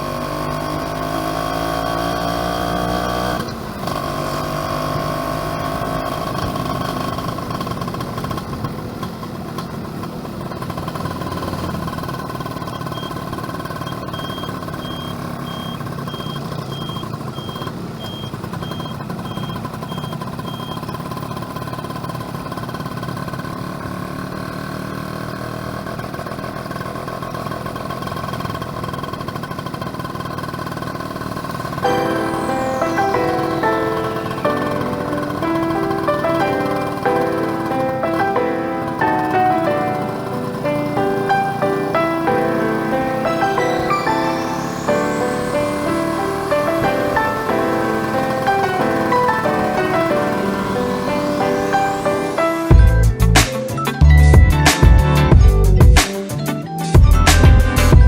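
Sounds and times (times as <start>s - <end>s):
road and wind noise: 0.0s - 53.5s
two-stroke motorcycle engine: 0.0s - 56.2s
faint high-pitched beeping: 12.4s - 21.0s.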